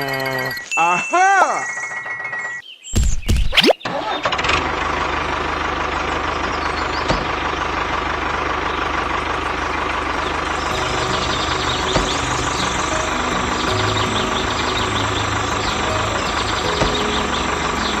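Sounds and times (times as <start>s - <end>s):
engine idling with low pulse: 4.2s - 18.0s.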